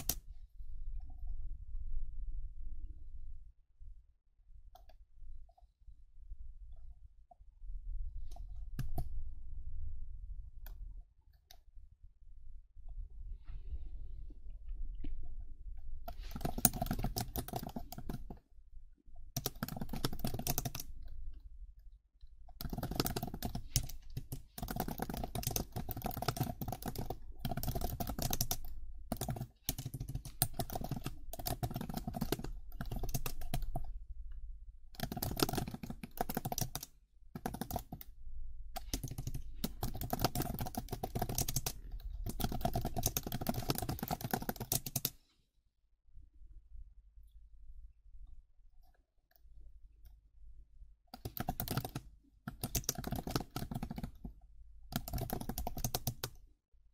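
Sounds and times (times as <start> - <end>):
fast keyboard typing: 0.0 - 0.2, 16.1 - 18.4, 19.4 - 21.1, 22.6 - 34.0, 35.0 - 38.2, 38.8 - 45.2, 51.2 - 54.3, 54.9 - 56.4.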